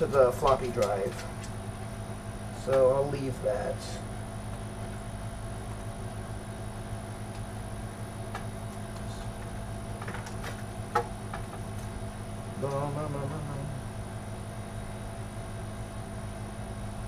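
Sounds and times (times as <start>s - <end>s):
low background hum: 0.0s - 17.0s
clicks and knocks of computer parts: 0.1s - 1.6s, 8.3s - 11.9s.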